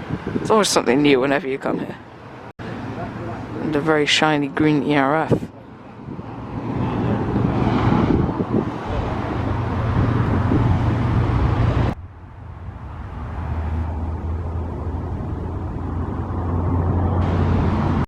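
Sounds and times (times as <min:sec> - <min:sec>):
lorry engine humming: 0:08.3 - 0:18.0.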